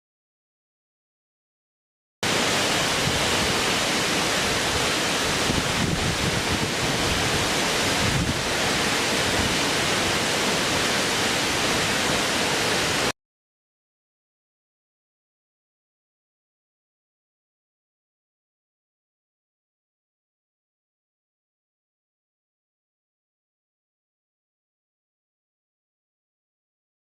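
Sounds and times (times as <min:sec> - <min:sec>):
steady rushing water: 0:02.2 - 0:13.1.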